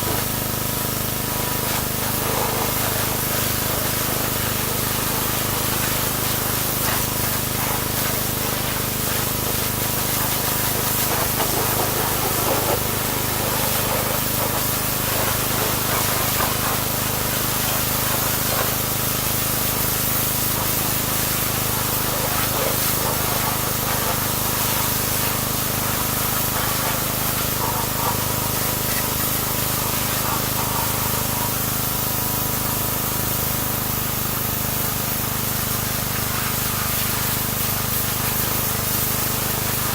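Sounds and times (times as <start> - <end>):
pressure washer spraying: 0.0 - 39.9
pump humming: 0.0 - 39.9.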